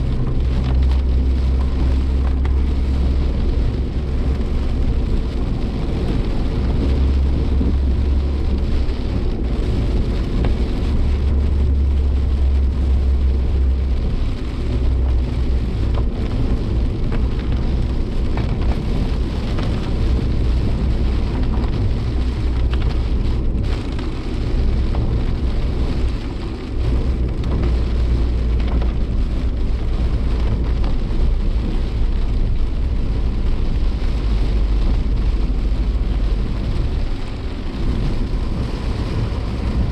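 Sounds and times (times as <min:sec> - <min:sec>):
engine and road drone: 0:00.0 - 0:39.9
rain hitting vehicle: 0:00.0 - 0:39.9
tyres hissing on wet road: 0:00.0 - 0:39.9.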